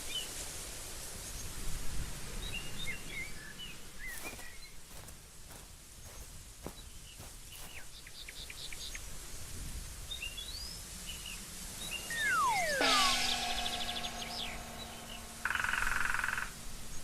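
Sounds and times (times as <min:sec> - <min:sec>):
outdoor hiss: 0:00.0 - 0:17.0
small birds chirping: 0:02.4 - 0:09.1
falling whistled glides: 0:11.9 - 0:16.5.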